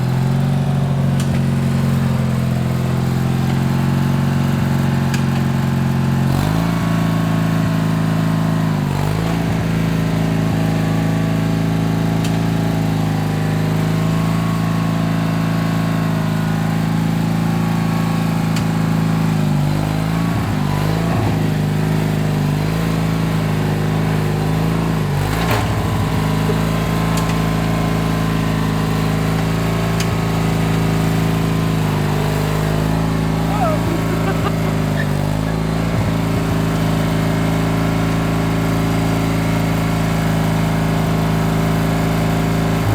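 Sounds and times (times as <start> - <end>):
lawn tractor engine running: 0.0 - 42.9.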